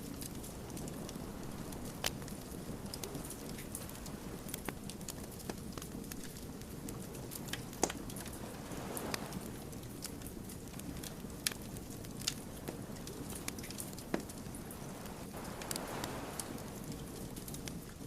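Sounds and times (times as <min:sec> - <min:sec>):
campfire crackling: 0:00.0 - 0:18.0.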